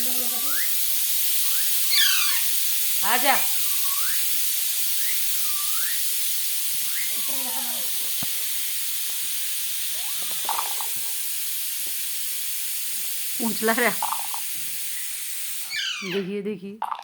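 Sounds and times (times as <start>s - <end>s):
steady high hiss: 0.0s - 16.2s
swooping whistle: 0.4s - 2.6s, 3.6s - 7.9s, 14.9s - 16.2s
brief chirping calls: 0.4s - 8.0s, 13.6s - 16.3s.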